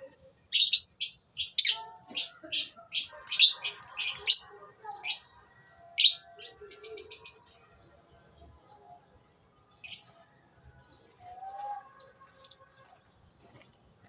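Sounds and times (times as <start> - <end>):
lovebirds chirping: 0.0 - 5.4.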